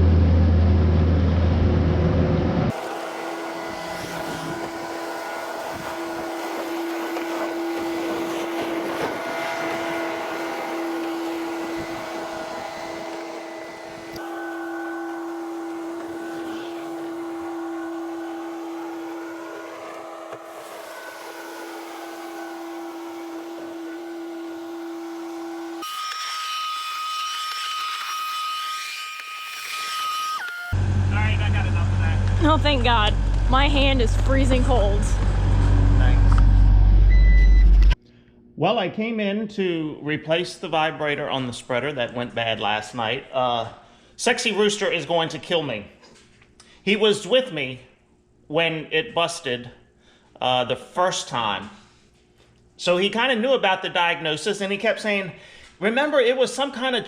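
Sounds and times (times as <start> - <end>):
machine engine humming and whining: 0.0 - 26.0, 30.4 - 38.0.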